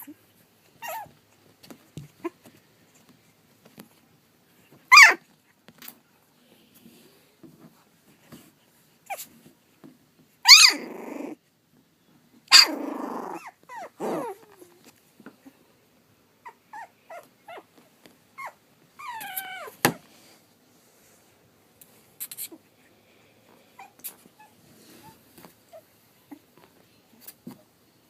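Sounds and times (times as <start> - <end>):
puppy whining: 0.0 - 1.4, 4.9 - 5.2, 9.0 - 9.4, 10.4 - 11.4, 12.5 - 14.9, 16.4 - 20.0, 23.7 - 26.6
puppies yipping and squeaking: 0.8 - 1.1, 4.9 - 5.2, 10.4 - 11.4, 12.5 - 14.6, 16.4 - 17.7, 18.4 - 19.8
puppy yelping: 0.8 - 1.1, 4.9 - 5.2, 10.4 - 11.4, 12.5 - 14.7, 16.4 - 17.7, 18.4 - 19.9
puppy growling: 10.5 - 11.4, 12.5 - 14.8.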